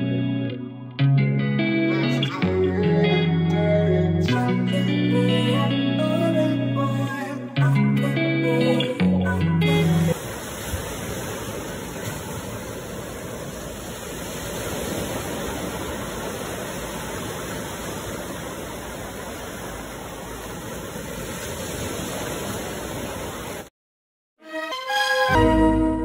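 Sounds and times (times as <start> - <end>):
flowing water rushing: 10.1 - 23.7.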